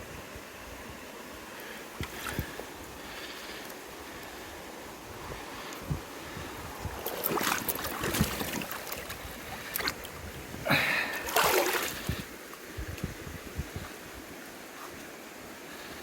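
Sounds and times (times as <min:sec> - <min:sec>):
river rushing: 0:00.2 - 0:12.8
water splashing and sloshing: 0:01.9 - 0:04.5, 0:05.2 - 0:15.9.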